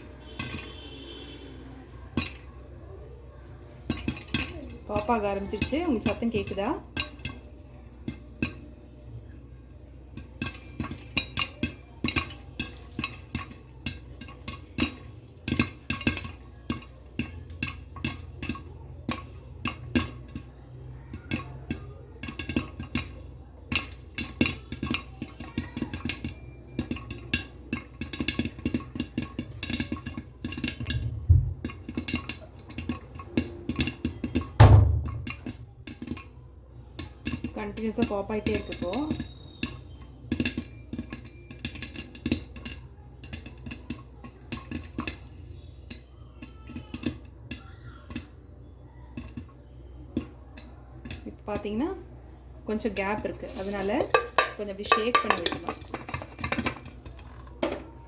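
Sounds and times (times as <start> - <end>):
gas stove hissing: 0.0 - 36.3, 36.9 - 46.1, 49.2 - 58.0
popcorn popping: 0.0 - 58.0
heavy thumps: 31.0 - 31.7, 34.6 - 35.7.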